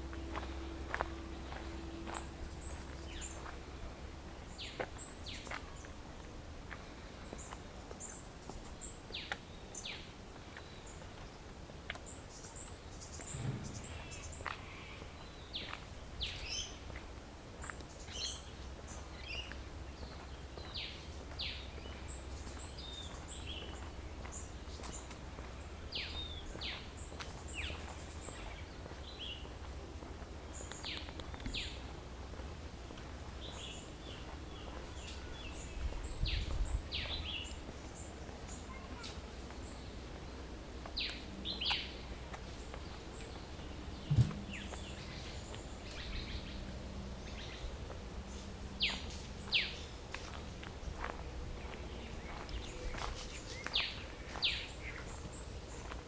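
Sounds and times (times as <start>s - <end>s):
birds chirping: 0.0s - 56.0s
low outdoor rumble: 0.0s - 56.0s
sharp thump: 13.3s - 14.2s, 44.0s - 44.8s.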